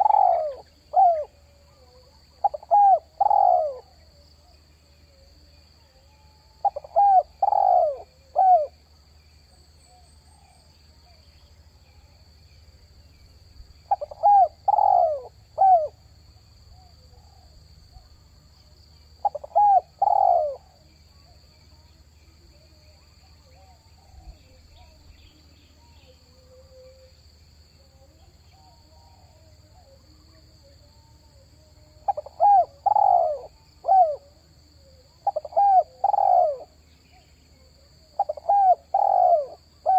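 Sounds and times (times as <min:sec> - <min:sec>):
dove cooing: 0:00.0 - 0:04.0, 0:06.6 - 0:08.8, 0:13.8 - 0:16.0, 0:19.2 - 0:21.3, 0:32.0 - 0:36.8, 0:38.1 - 0:39.9.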